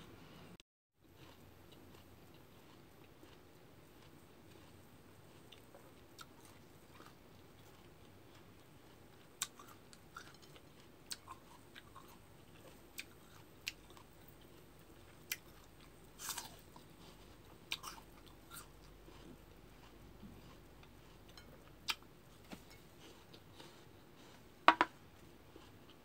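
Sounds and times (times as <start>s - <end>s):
crunchy fruit chewing: 1.0s - 26.0s.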